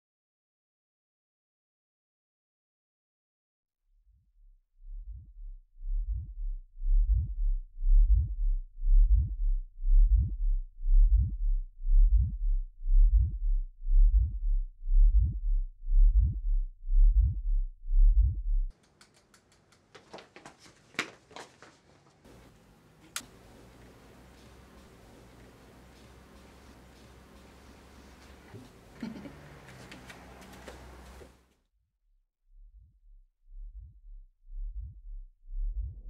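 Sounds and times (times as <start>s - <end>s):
heartbeat thumps: 5.0s - 18.7s, 32.7s - 36.0s.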